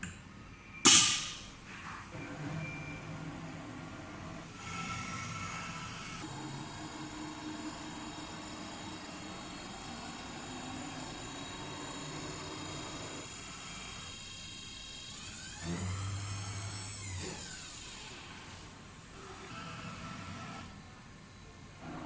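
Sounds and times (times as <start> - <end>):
router spindle high whine: 4.6 - 22.0.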